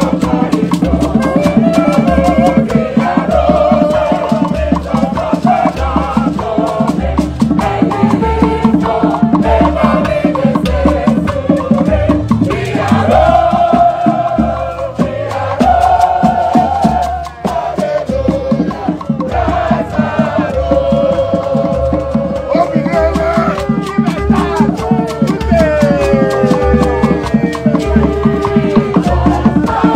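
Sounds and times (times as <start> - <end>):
drum beat: 0.0 - 29.9
person singing: 7.6 - 29.9.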